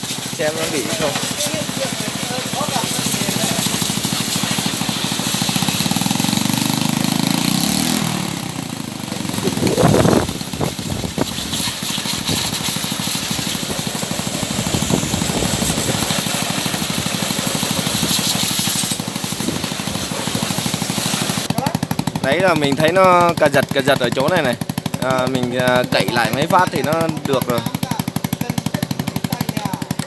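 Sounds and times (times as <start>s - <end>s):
water spray hissing: 0.0s - 21.5s
motorcycle engine idling roughly: 0.0s - 30.0s.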